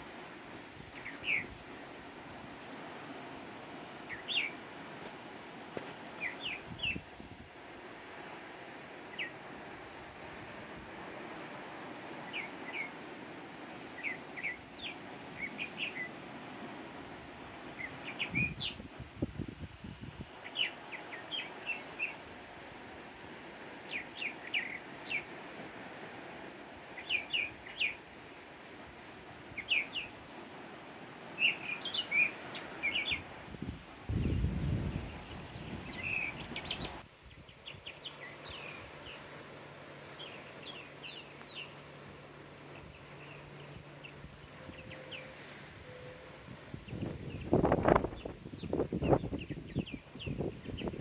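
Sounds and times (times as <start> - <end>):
steady background hiss: 0.0 - 51.0
small birds chirping: 23.9 - 25.4, 29.5 - 30.2, 31.4 - 33.3, 34.1 - 45.6, 46.8 - 51.0.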